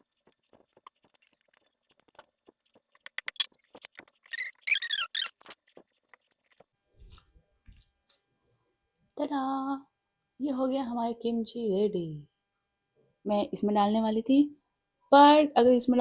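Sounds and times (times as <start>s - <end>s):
cabbage crunching while mixed: 0.0s - 7.9s
high squeaks: 3.2s - 5.6s.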